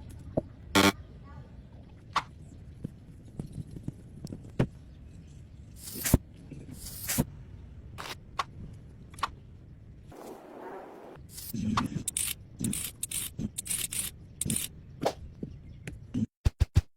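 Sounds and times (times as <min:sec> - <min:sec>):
brief scraping hisses: 0:05.8 - 0:06.2.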